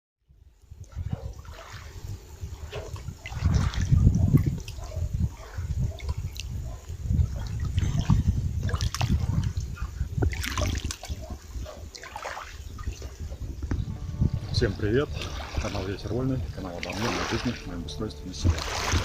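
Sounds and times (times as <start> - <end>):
river water lapping and splashing: 0.7 - 19.0
low uneven rumble: 13.0 - 19.0.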